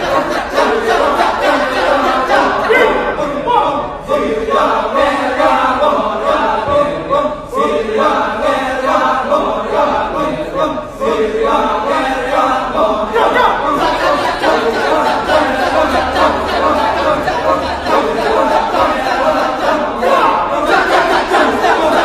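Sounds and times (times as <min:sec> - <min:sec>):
chorus chanting a cappella: 0:00.0 - 0:22.0.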